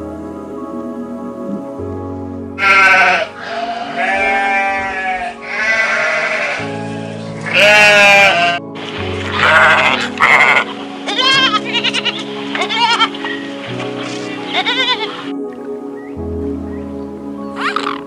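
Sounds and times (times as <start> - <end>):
background music: 0.0 - 18.0
sheep bleating: 2.6 - 8.6, 9.3 - 13.2, 14.4 - 15.3.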